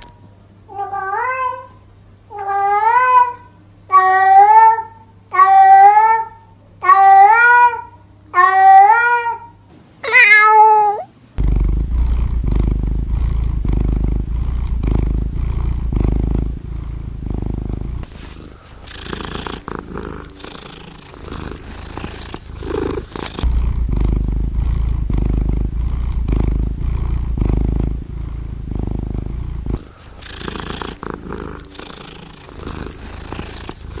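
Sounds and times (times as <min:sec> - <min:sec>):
cat meowing: 0:08.4 - 0:11.1
cat purring: 0:11.4 - 0:34.0.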